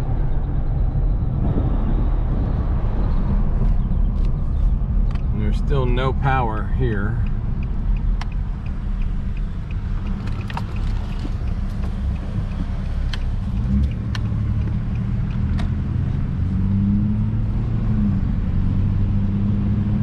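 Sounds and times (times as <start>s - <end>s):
car engine and road noise: 0.0s - 20.0s
sharp clicks and taps: 7.0s - 15.8s.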